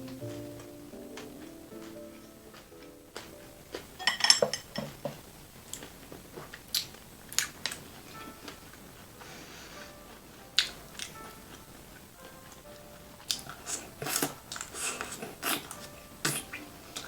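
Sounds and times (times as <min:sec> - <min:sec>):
faint background music: 0:00.0 - 0:17.0
utensils and dishes clinking: 0:02.2 - 0:05.2.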